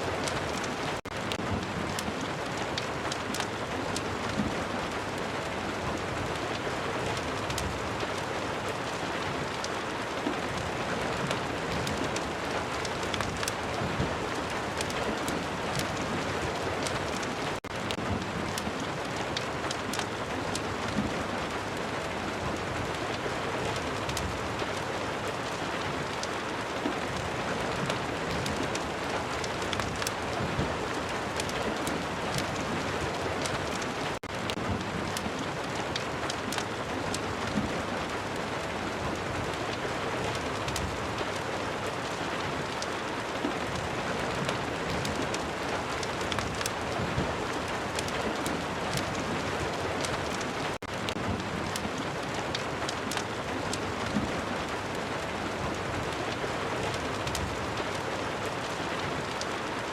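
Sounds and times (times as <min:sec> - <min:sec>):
steady rain: 0:00.0 - 0:59.9
sharp crackles: 0:06.5 - 0:21.6, 0:22.5 - 0:38.3, 0:39.1 - 0:54.9.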